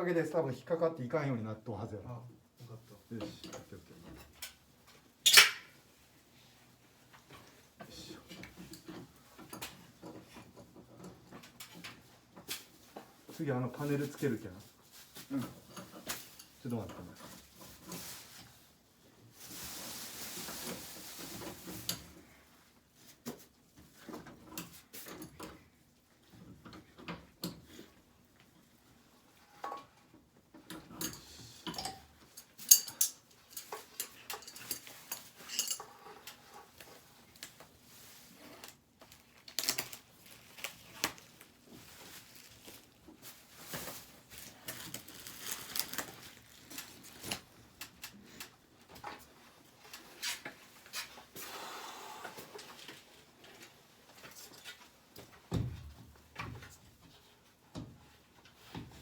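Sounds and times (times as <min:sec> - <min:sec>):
rustling: 0:17.2 - 0:22.2, 0:33.6 - 0:48.1
hard parts clinking and knocking: 0:30.7 - 0:36.4.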